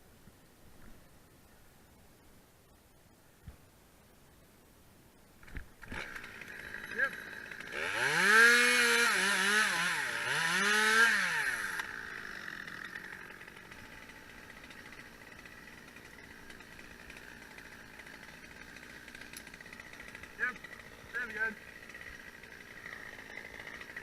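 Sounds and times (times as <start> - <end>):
chainsaw revving: 5.5 - 24.0.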